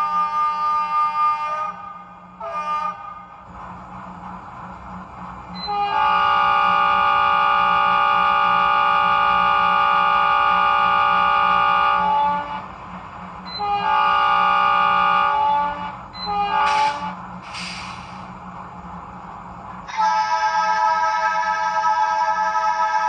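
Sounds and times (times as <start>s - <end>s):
diesel locomotive horn blasts: 0.0s - 3.5s, 5.5s - 18.0s, 19.8s - 23.0s.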